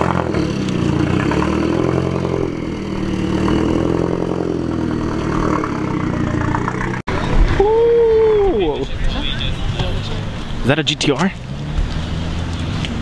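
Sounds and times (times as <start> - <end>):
car engine running at low revs: 8.8 - 13.0.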